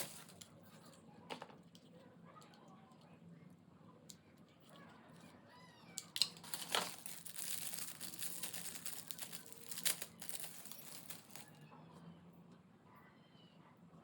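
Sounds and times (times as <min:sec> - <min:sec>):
packaging crinkling: 0:00.0 - 0:00.4, 0:06.0 - 0:11.5.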